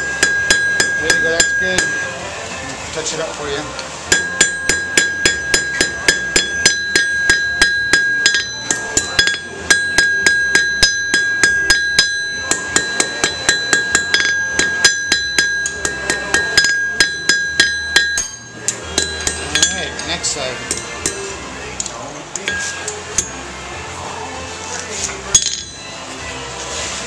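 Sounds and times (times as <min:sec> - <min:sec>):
anvil ringing: 0:00.0 - 0:02.2, 0:04.1 - 0:21.3, 0:22.4 - 0:23.4, 0:25.3 - 0:26.0
hammer striking iron on anvil: 0:00.0 - 0:02.2, 0:04.1 - 0:21.4, 0:22.4 - 0:23.4, 0:25.3 - 0:25.9.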